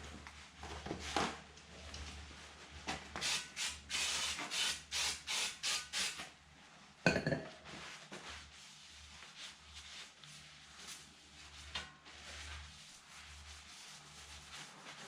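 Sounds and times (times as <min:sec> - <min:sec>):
rubbing on window glass: 0:08.2 - 0:15.0.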